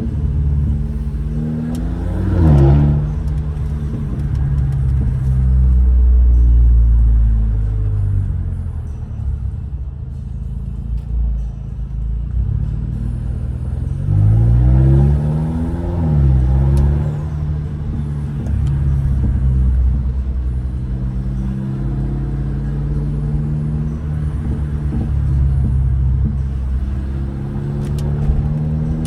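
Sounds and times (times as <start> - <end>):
car engine accelerating and cruising: 0.0 - 29.0.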